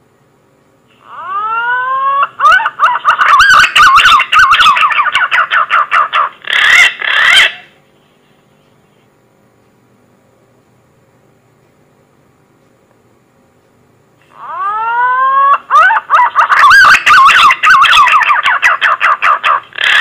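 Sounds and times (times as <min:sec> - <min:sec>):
pigeon call whistles: 0:14.4 - 0:20.0.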